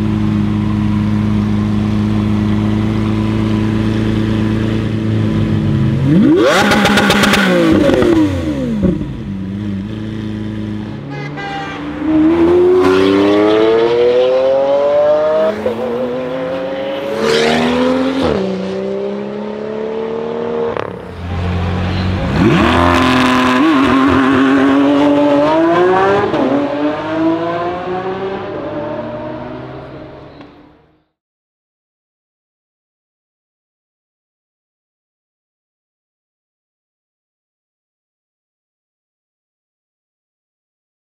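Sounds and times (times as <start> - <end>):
car engine accelerating through gears: 12.1 - 21.0, 21.6 - 29.9.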